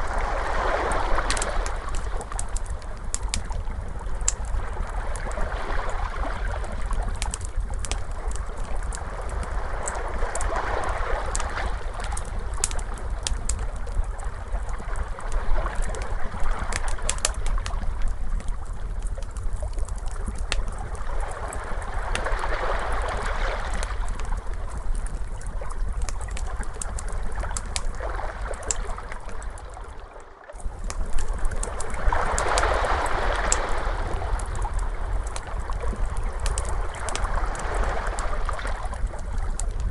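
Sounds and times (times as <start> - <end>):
ocean waves washing: 0.0 - 2.8, 27.5 - 39.9
wood fire crackling: 0.0 - 29.9, 30.5 - 39.9.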